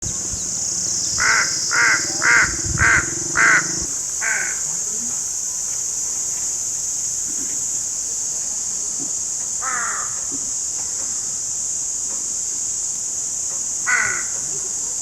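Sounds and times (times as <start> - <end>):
crow cawing: 1.1 - 4.6, 9.6 - 10.2, 13.9 - 14.4.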